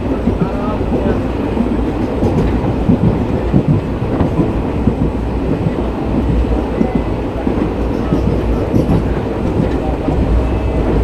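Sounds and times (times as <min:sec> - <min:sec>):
train wheels rumbling on rail: 0:00.0 - 0:11.0
clattering knocks: 0:01.9 - 0:10.3.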